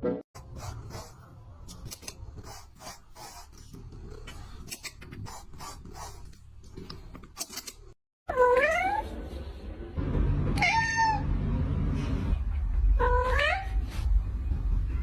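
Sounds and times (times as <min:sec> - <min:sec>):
low rumble: 0:09.2 - 0:15.0.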